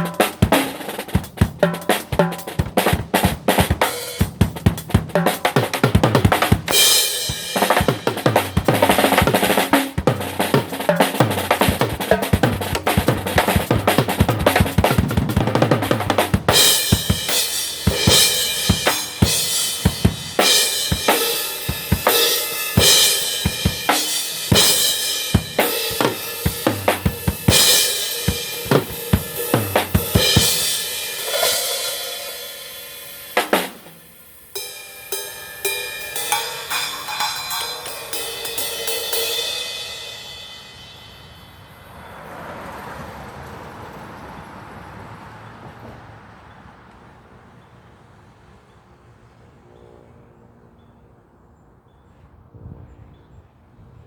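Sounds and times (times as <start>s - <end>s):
drum kit playing: 0.0s - 41.6s.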